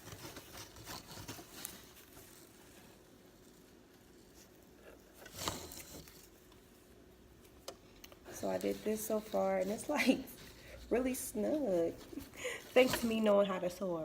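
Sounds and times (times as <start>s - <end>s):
light rustling: 7.9s - 13.4s.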